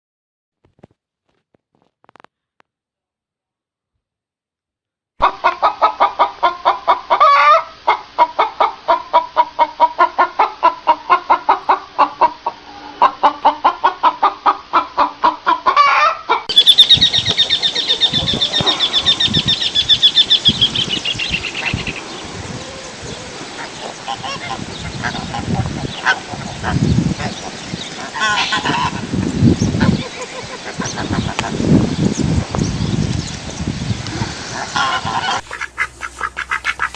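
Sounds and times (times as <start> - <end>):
chicken squawk: 5.2 - 31.7, 34.1 - 36.9
chicken clucking: 5.2 - 31.8, 34.0 - 36.9
geese calling: 15.6 - 32.6, 34.0 - 36.9.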